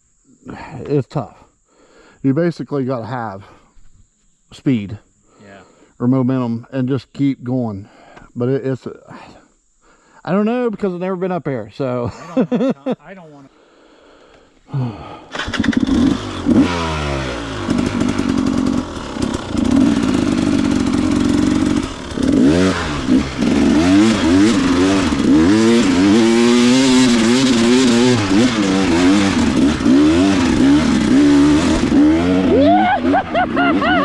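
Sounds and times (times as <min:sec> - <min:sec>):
dirt bike engine revving: 0:15.3 - 0:34.0.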